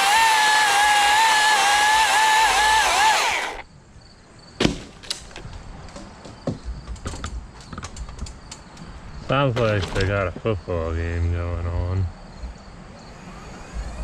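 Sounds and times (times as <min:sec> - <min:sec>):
chainsaw running: 0:00.0 - 0:03.6.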